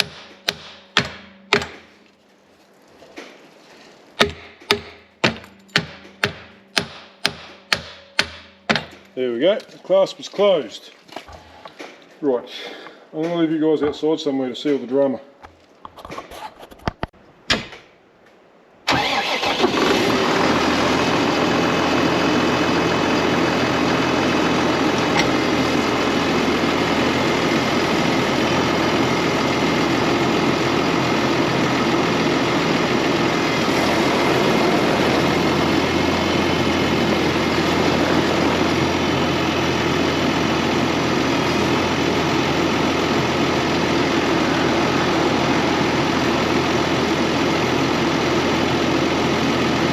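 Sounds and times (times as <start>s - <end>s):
tractor engine running: 0.0s - 3.2s, 4.2s - 10.6s, 18.9s - 49.9s.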